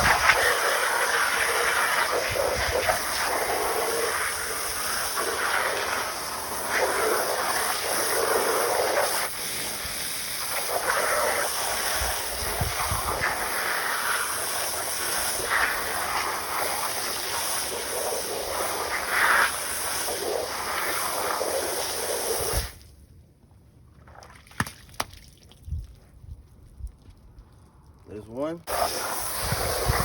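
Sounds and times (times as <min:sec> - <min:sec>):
hose spraying water on rubber mats: 0:00.0 - 0:22.9, 0:28.7 - 0:30.0.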